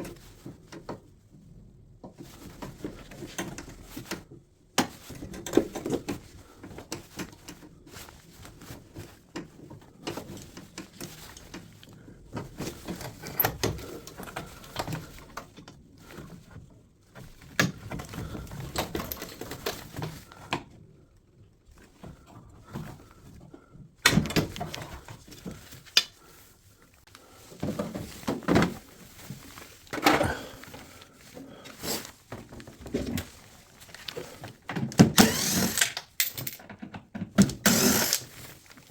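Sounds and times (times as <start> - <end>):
tools being handled: 17.6 - 20.3, 27.2 - 38.9
clicks and knocks of machine parts: 32.4 - 38.3.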